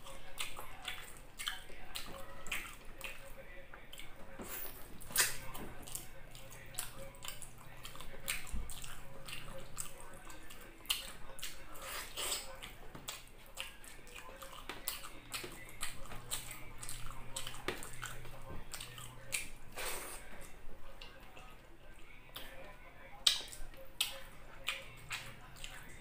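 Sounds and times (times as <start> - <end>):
wet chewing and lip smacking: 0.0 - 26.0.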